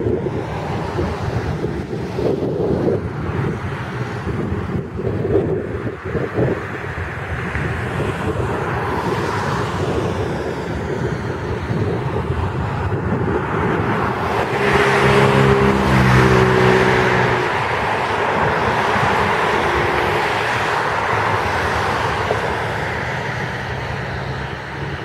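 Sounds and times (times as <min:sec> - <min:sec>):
vehicle passing on wet road: 0:00.1 - 0:25.0
heavy rain: 0:14.1 - 0:25.0.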